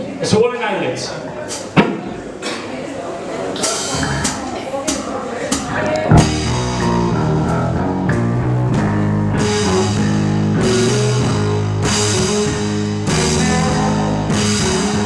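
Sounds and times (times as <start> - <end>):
drum kit: 3.6 - 15.0
distorted electric guitars: 3.9 - 4.3, 5.7 - 15.0
bass guitar: 3.9 - 4.4, 5.7 - 15.0.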